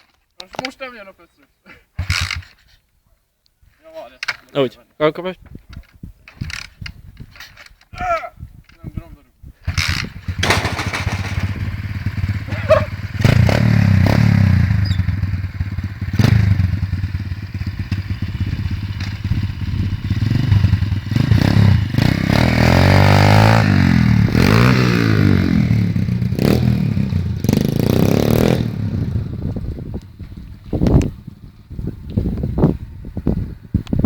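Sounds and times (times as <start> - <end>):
pit bike engine revving: 9.7 - 29.7.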